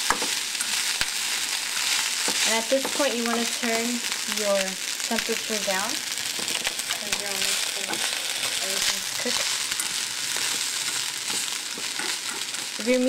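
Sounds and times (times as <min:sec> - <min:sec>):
food sizzling in a frying pan: 0:00.0 - 0:13.0
chopsticks scraping a pan: 0:00.1 - 0:04.4, 0:05.5 - 0:13.0.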